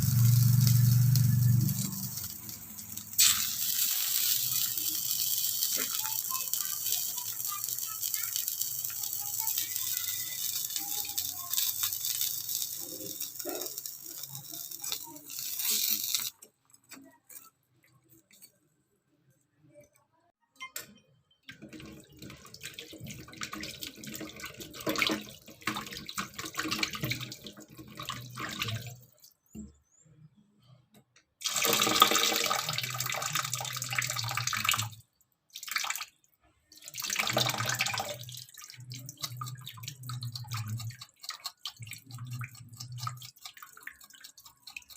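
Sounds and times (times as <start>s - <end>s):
tap water running into sink: 0.0s - 16.3s, 21.5s - 29.1s, 31.4s - 35.0s, 36.7s - 44.9s.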